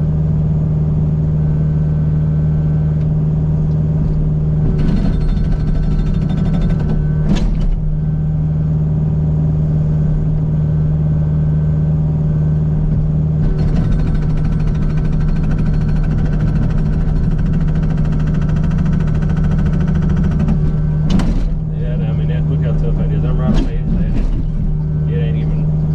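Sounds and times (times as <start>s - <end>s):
excavator diesel engine running: 0.2s - 25.9s
hydraulic hammer chattering on rock: 4.7s - 7.8s, 13.4s - 21.6s.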